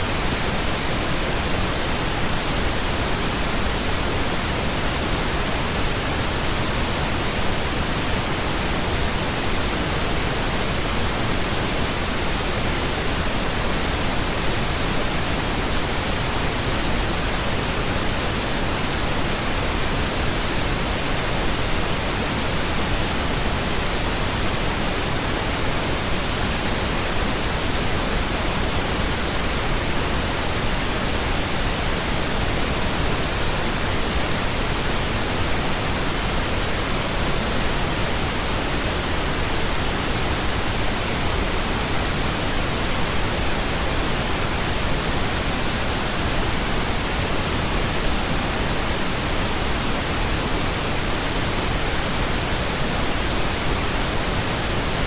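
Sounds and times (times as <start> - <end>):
pink noise hiss: 0.0 - 55.0.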